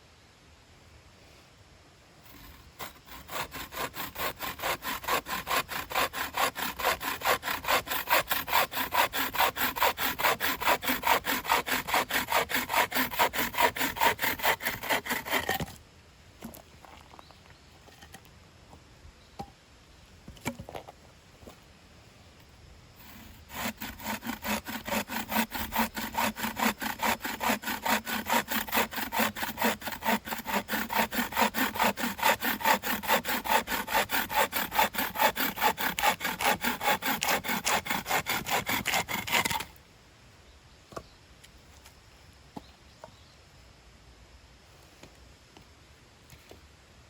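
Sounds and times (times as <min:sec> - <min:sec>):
hand saw cutting wood: 0:02.3 - 0:15.8, 0:23.0 - 0:39.8.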